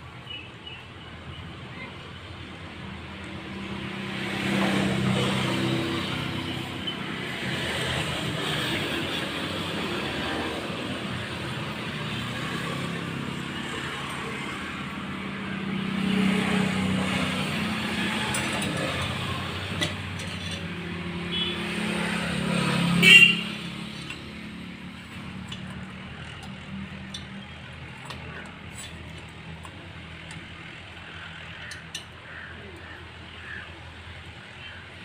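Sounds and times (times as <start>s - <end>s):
vehicles passing: 0.0s - 35.0s.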